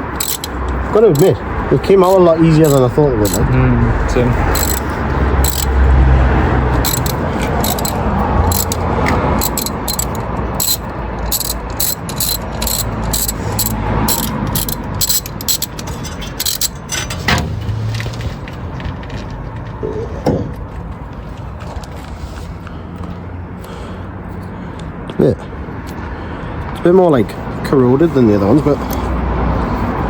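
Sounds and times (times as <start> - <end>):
socket ratchet clicking: 0.0 - 1.4, 2.0 - 3.5, 4.5 - 5.8, 6.7 - 16.8
low rumbling handling noise: 0.0 - 22.1.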